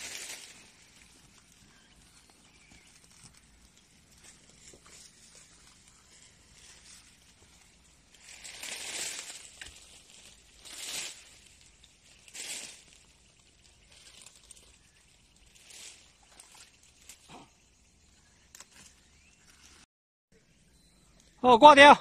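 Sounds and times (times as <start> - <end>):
netting and brush rustling: 0.0 - 17.6.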